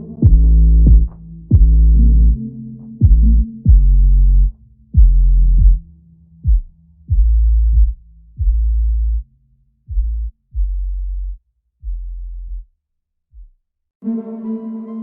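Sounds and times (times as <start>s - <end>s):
electronic bass drum hits: 0.2s - 2.4s, 3.0s - 4.0s.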